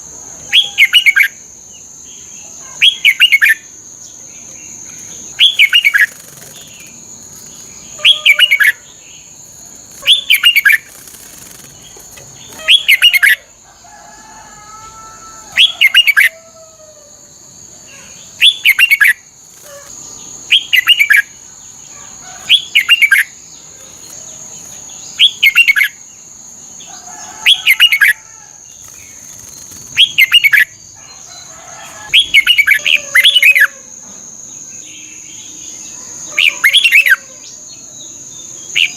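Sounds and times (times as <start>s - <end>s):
bird warbling: 5.2s - 9.0s, 9.7s - 13.5s, 28.8s - 31.2s, 32.1s - 33.8s.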